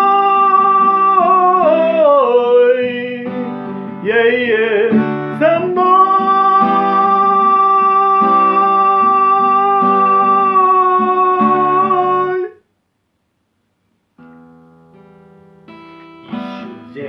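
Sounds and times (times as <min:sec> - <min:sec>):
person singing: 0:00.0 - 0:12.6, 0:16.3 - 0:17.0
strummed acoustic guitar: 0:00.0 - 0:12.6, 0:14.2 - 0:17.0.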